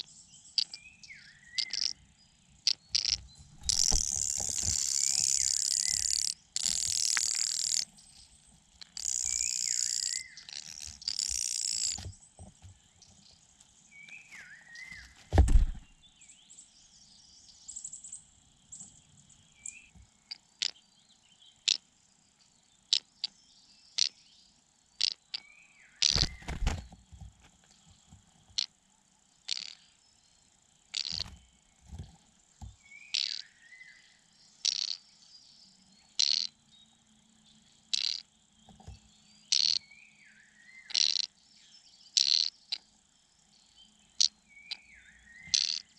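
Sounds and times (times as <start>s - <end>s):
bird chirps: 0.0s - 27.0s, 29.4s - 31.7s, 32.8s - 42.9s, 43.5s - 45.9s
crickets trilling: 0.0s - 45.9s
sharp clicks: 2.7s - 7.9s
heavy low thump: 15.3s - 16.0s.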